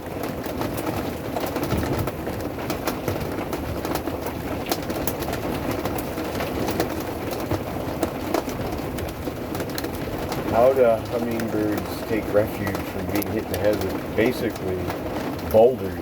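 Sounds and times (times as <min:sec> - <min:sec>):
hail and rain pelting a roof: 0:00.0 - 0:16.0.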